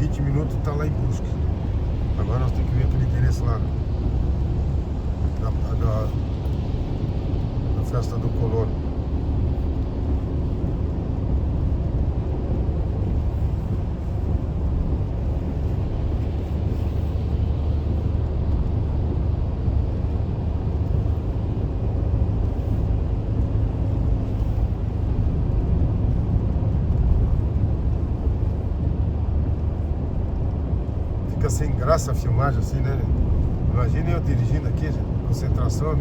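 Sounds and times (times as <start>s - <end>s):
car cabin road and engine rumble: 0.0s - 36.0s.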